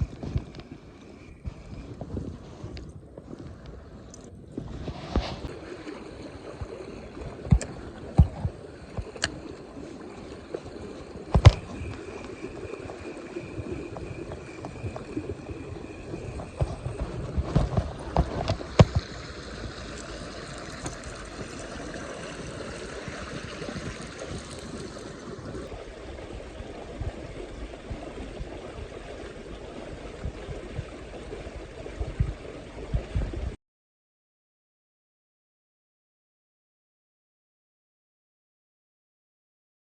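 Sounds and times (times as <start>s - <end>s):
stream running over rocks: 4.8s - 33.6s.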